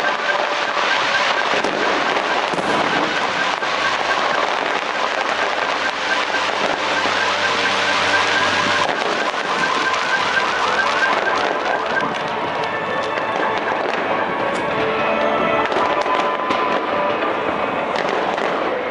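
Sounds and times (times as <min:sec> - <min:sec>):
car alarm warbling: 0:00.0 - 0:12.6
fireworks crackling bangs: 0:00.0 - 0:18.9.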